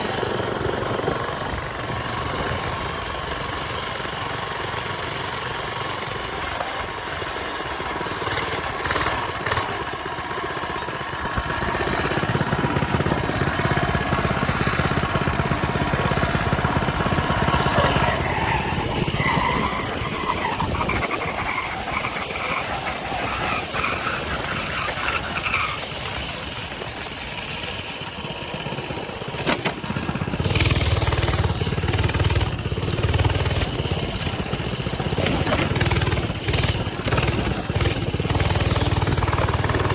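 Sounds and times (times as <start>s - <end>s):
mini bike engine running: 0.0s - 39.9s.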